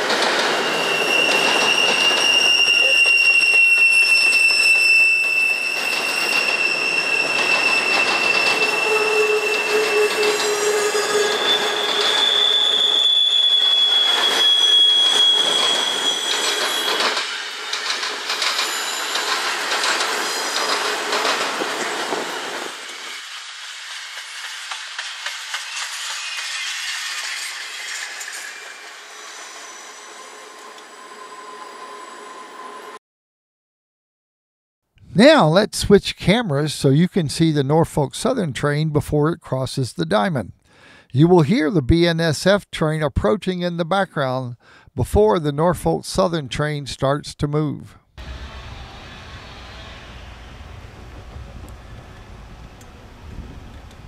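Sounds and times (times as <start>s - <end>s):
wheels clacking over rail joints: 0.0s - 10.6s, 15.2s - 23.0s
high wheel squeals: 0.0s - 23.5s, 24.6s - 33.0s
freight train rolling: 0.0s - 33.0s, 48.2s - 54.0s.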